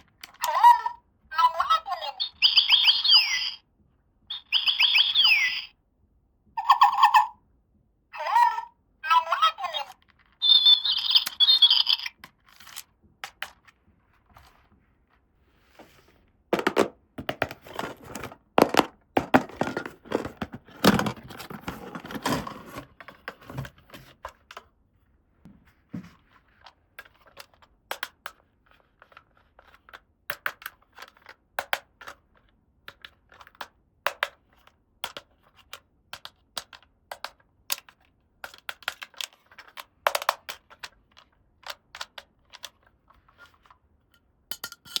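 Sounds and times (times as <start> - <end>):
plastic pieces clicking and tapping: 12.2 - 13.7, 16.6 - 22.8, 27.0 - 28.4, 29.0 - 43.4.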